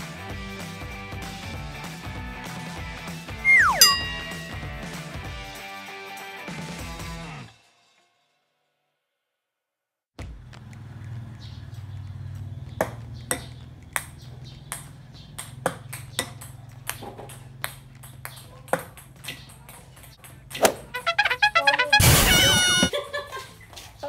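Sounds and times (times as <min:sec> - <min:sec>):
ping-pong balls bouncing: 0:03.5 - 0:04.9, 0:12.8 - 0:21.9.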